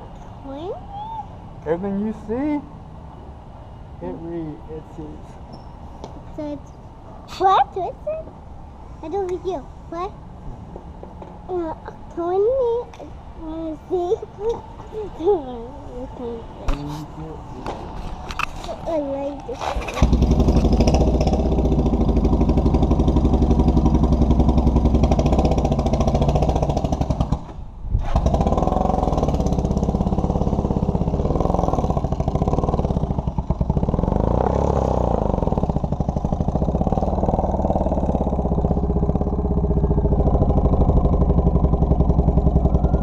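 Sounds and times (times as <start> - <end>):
motorcycle engine running: 19.7 - 43.0.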